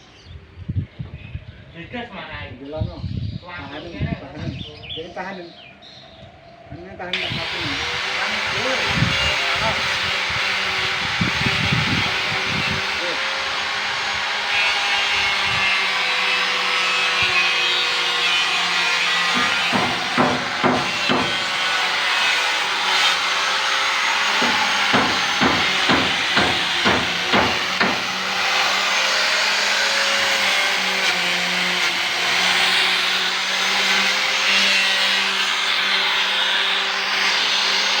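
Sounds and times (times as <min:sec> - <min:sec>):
electric sander on metal: 0:07.2 - 0:38.0
sharp knocks: 0:19.3 - 0:21.7, 0:24.3 - 0:28.4.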